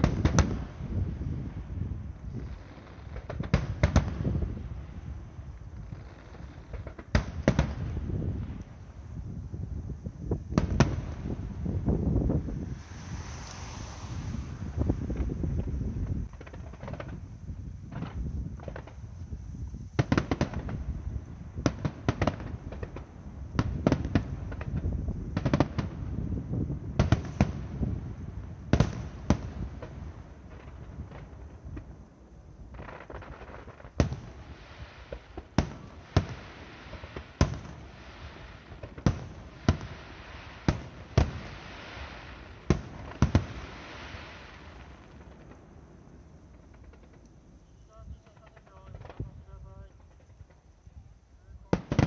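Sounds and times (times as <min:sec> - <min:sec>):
fireworks bangs: 0:00.0 - 0:52.0
steady hiss: 0:00.0 - 0:52.0
rumbling low reports: 0:47.8 - 0:50.1.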